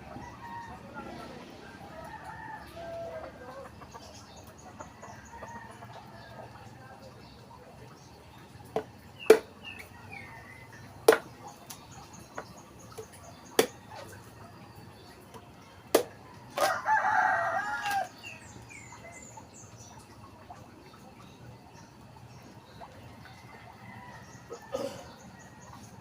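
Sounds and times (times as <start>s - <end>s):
rooster crowing: 0.2s - 3.6s, 16.6s - 18.2s
small birds chirping: 2.7s - 26.0s.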